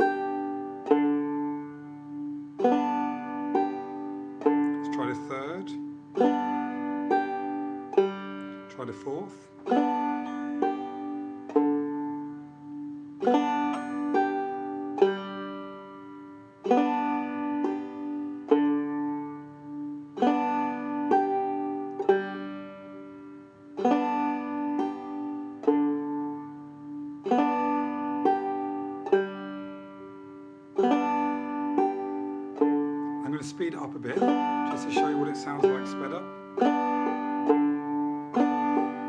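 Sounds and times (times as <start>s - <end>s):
banjo played clawhammer style: 0.0s - 39.0s.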